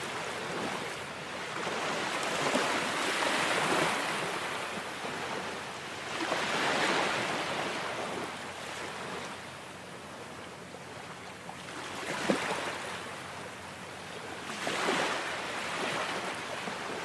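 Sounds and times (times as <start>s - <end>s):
ocean waves washing in: 0.0s - 10.3s.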